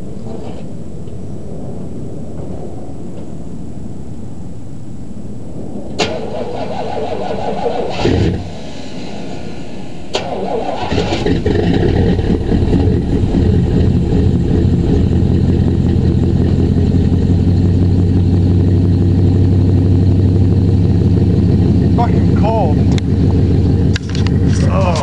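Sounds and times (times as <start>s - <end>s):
engine cranking and running: 10.1s - 25.0s.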